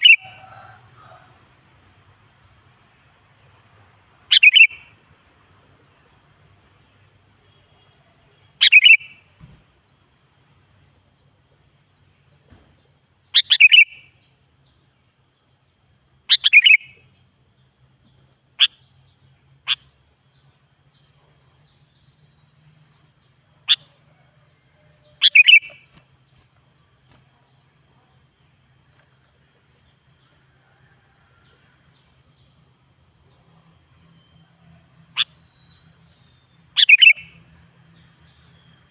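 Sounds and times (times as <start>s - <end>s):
bulbul calling: 0.0s - 1.8s, 4.3s - 4.9s, 8.6s - 9.3s, 13.4s - 14.1s, 16.3s - 17.0s, 25.2s - 26.1s, 36.7s - 37.5s.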